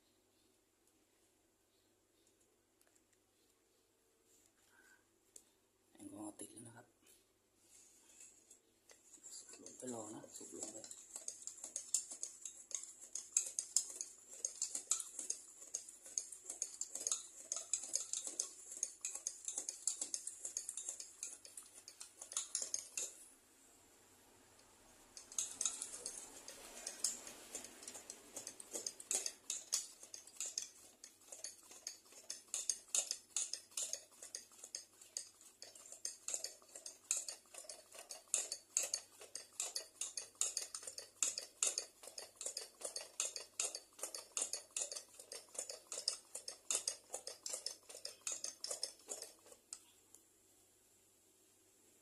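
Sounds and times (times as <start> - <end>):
hand air pump strokes: 9.0 - 23.2, 25.1 - 49.8.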